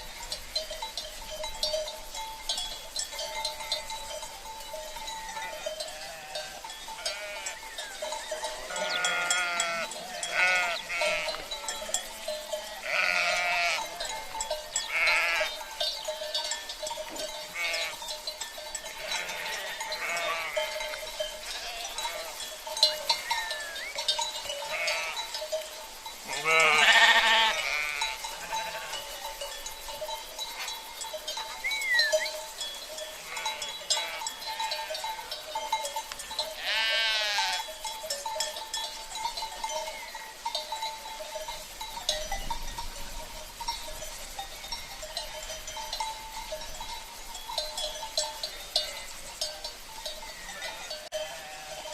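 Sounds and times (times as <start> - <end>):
cowbells ringing: 0.0 - 51.9
sheep bleating: 5.4 - 7.6, 8.6 - 14.0, 14.8 - 15.6, 17.5 - 18.0, 18.9 - 20.8, 21.4 - 22.4, 23.1 - 23.9, 24.7 - 25.3, 26.3 - 29.1, 33.2 - 35.0, 36.6 - 37.7, 50.3 - 51.9.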